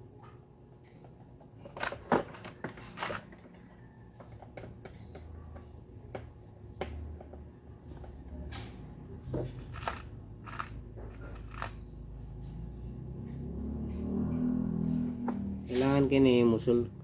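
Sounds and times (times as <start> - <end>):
small parts clicking and knocking: 0.9 - 12.1.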